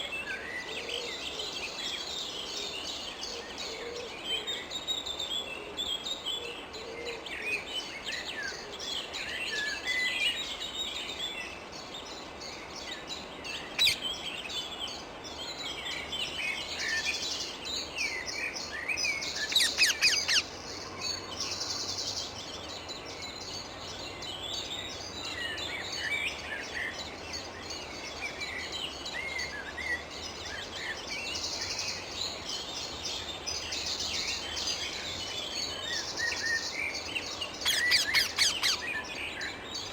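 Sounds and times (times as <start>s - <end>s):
parakeets chirping: 19.5s - 20.5s, 37.6s - 38.9s.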